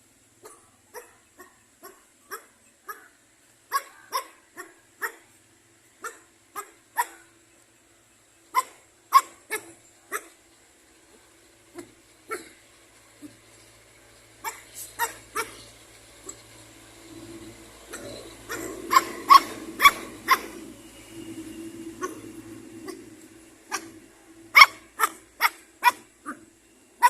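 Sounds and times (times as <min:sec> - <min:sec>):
dog barking: 0:00.4 - 0:05.3, 0:06.0 - 0:07.3, 0:08.5 - 0:10.4, 0:11.8 - 0:12.6, 0:14.4 - 0:15.6, 0:17.9 - 0:20.7, 0:22.0 - 0:23.1, 0:23.7 - 0:26.5.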